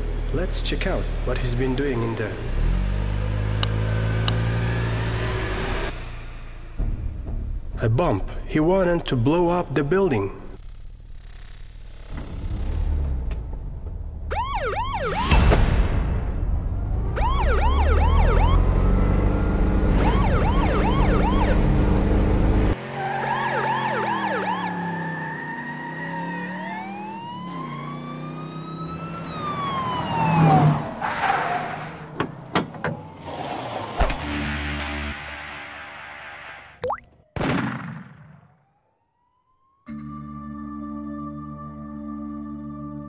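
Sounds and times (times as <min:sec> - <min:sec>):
police siren yelping: 0:14.3 - 0:15.4, 0:17.2 - 0:18.9, 0:20.0 - 0:21.7, 0:23.0 - 0:31.0.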